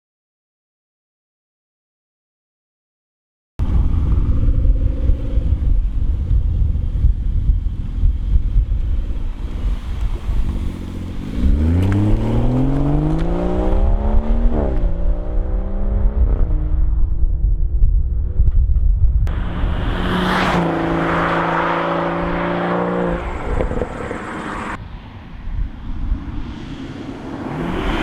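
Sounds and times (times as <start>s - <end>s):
car engine rumbling and revving: 3.6s - 24.8s, 25.6s - 28.0s
gear upshifts: 9.4s - 15.0s, 19.3s - 24.8s.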